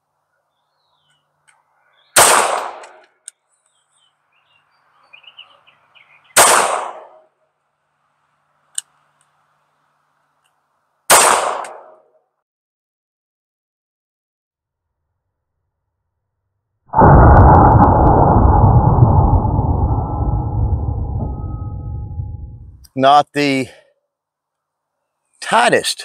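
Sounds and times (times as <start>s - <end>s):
pistol shots: 2.2s - 3.0s, 6.4s - 7.2s, 11.1s - 12.0s.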